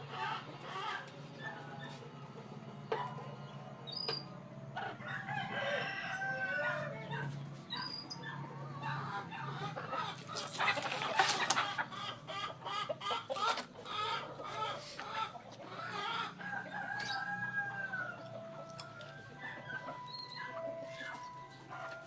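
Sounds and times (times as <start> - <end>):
animal calls: 7.0 - 18.8.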